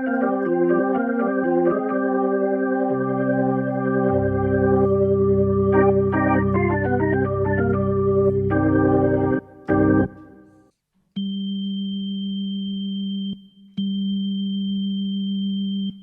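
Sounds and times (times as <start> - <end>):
short organ melody: 0.0 - 10.4
keyboard organ chords: 0.0 - 10.5
bass note: 3.0 - 10.2.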